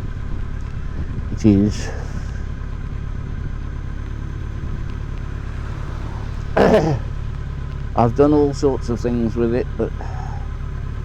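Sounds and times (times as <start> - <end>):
motorcycle engine and road noise: 0.0 - 11.0
rider vocal sound: 4.6 - 7.2.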